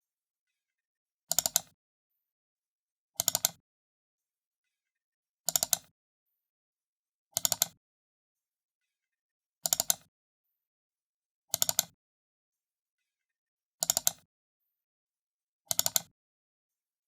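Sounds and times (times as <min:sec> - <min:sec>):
mouse button double-clicking: 0:15.7 - 0:16.1.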